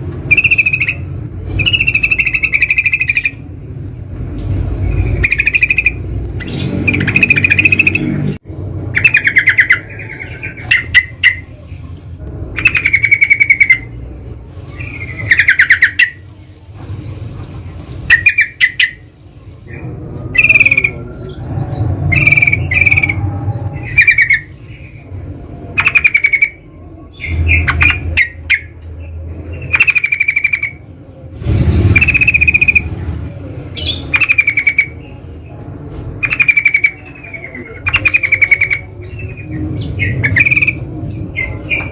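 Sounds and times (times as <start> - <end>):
bird bubbly chattering calls: 14.8 - 16.2, 18.1 - 19.0, 31.9 - 32.9.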